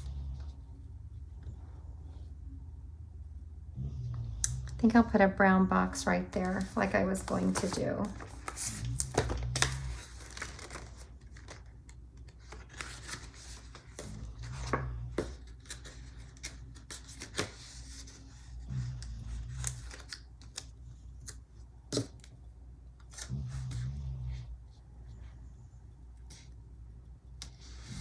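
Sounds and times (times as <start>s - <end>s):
paper stickers rustling and peeling: 6.0s - 18.4s.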